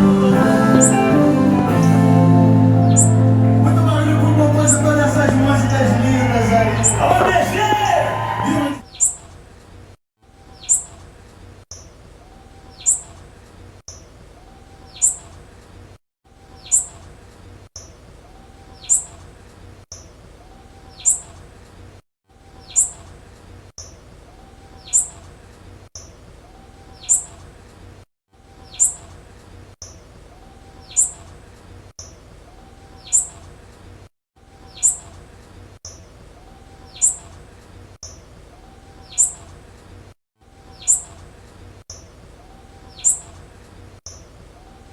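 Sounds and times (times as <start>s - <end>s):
bird high chirp: 2.7s - 9.3s, 10.5s - 11.0s, 16.5s - 17.0s, 20.9s - 21.3s, 22.6s - 23.0s, 28.6s - 29.0s, 32.9s - 33.4s, 34.7s - 35.1s, 36.9s - 37.2s, 39.0s - 39.4s, 40.6s - 41.2s, 42.8s - 43.3s.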